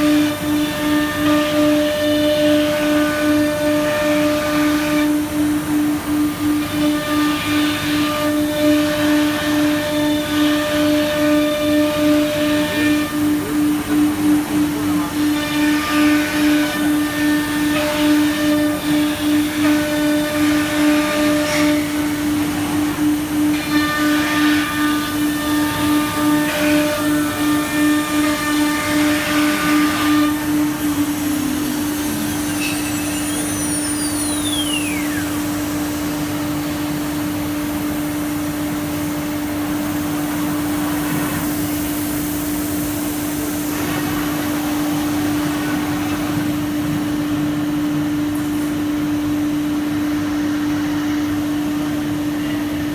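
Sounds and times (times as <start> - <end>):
cnc router whine: 0.0 - 52.9
high tone sliding downward: 30.5 - 35.6.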